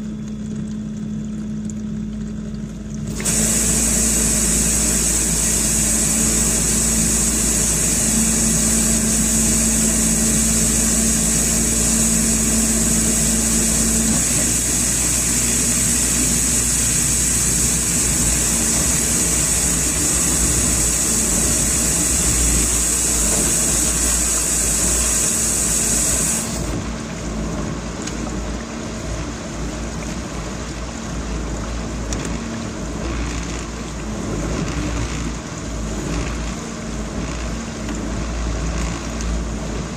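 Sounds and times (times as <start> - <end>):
high hiss: 3.1 - 26.8
dishwasher running: 3.1 - 27.2.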